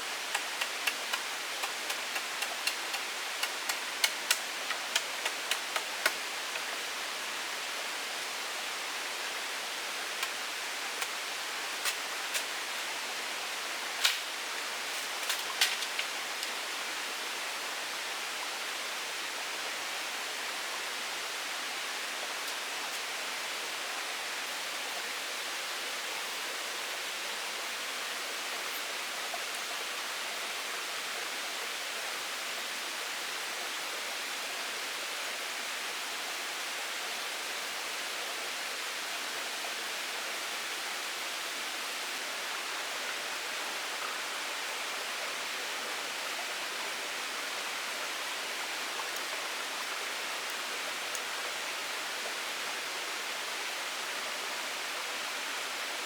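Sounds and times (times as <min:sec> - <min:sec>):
rushing water: 0:00.0 - 0:56.0
sharp irregular clicks and knocks: 0:00.3 - 0:06.7.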